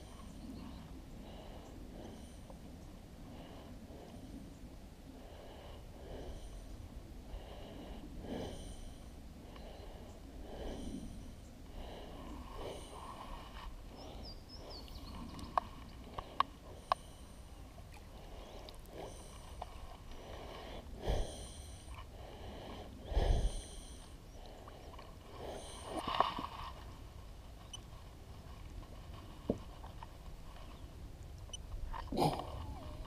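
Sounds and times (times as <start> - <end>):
water lapping against kayak: 9.6 - 33.0.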